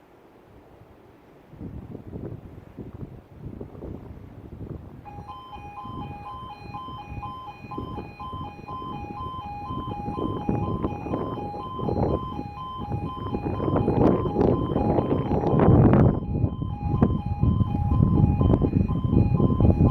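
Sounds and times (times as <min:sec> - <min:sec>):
low rumbling noise: 0:00.6 - 0:19.9
two-tone warning alarm beeping: 0:05.0 - 0:19.9.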